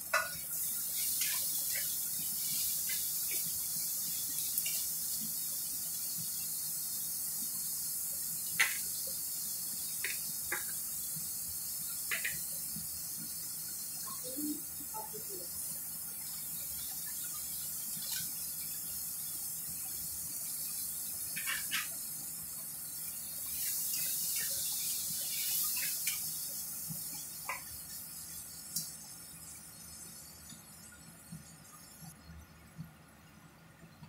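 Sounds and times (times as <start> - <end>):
vegetables sizzling in a pot: 0.0 - 32.2.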